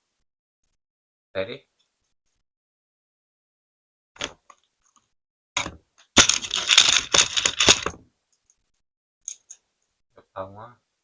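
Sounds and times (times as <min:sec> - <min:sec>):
plastic toy pieces clattering: 0:05.6 - 0:08.0.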